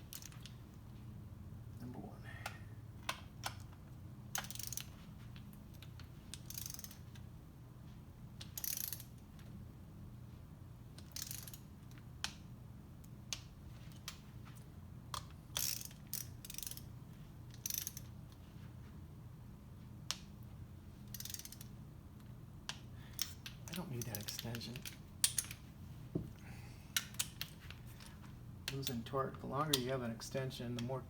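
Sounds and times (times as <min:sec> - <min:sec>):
ratcheting torque wrench: 0:04.4 - 0:04.9, 0:06.4 - 0:07.1, 0:08.4 - 0:09.1, 0:11.0 - 0:11.7, 0:15.6 - 0:16.8, 0:17.5 - 0:18.1, 0:21.1 - 0:21.7
torque wrench clicks: 0:04.4 - 0:04.9, 0:06.4 - 0:07.0, 0:08.4 - 0:09.1, 0:11.0 - 0:12.4, 0:15.2 - 0:16.8, 0:17.5 - 0:18.1, 0:21.1 - 0:21.7.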